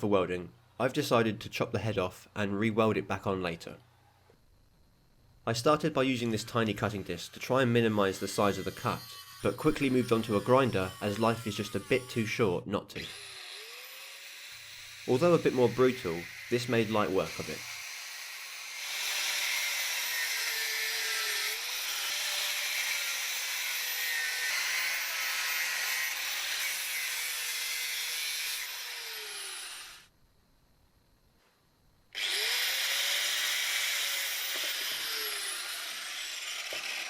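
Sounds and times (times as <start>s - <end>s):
angle grinder cutting steel: 6.1s - 30.1s, 32.2s - 37.0s.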